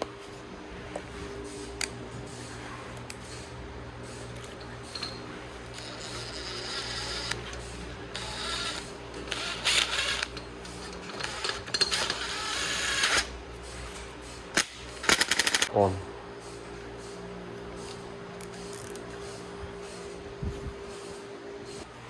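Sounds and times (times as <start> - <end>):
metal-on-metal tool noise: 2.2 - 15.7.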